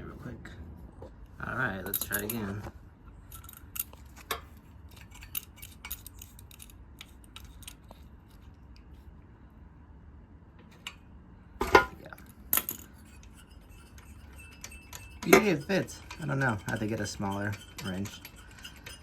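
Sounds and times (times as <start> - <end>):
small metallic clicks: 3.3 - 8.9.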